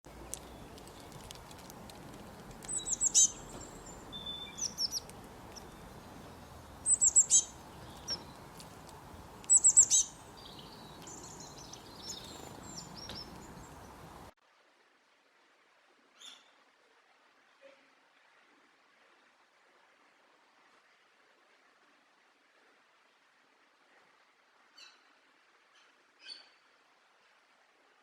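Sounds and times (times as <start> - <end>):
small birds singing: 0.1 - 14.3
low hiss: 0.1 - 28.0.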